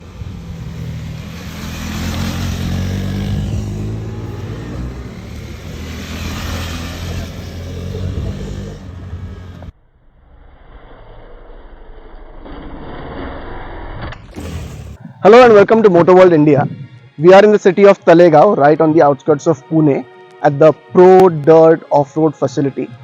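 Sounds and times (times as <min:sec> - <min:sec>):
motorcycle engine revving: 0:00.0 - 0:09.8.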